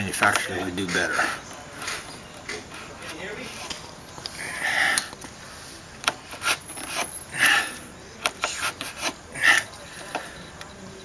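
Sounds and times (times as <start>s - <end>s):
wood chisel paring wood: 6.0s - 10.8s.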